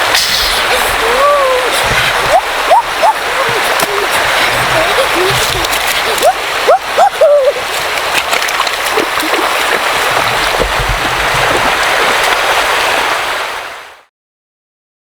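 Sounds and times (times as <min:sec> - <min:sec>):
rushing water: 0:00.0 - 0:14.1
small clicks and splashes: 0:03.4 - 0:06.8, 0:07.6 - 0:12.7.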